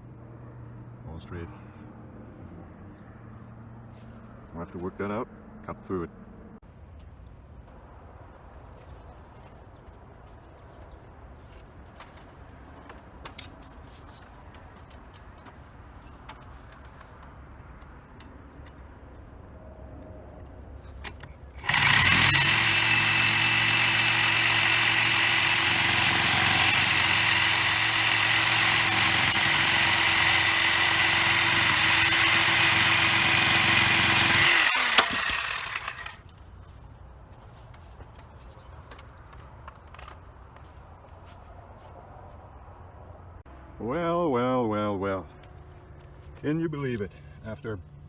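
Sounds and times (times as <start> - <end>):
power tool running: 21.2 - 36.2.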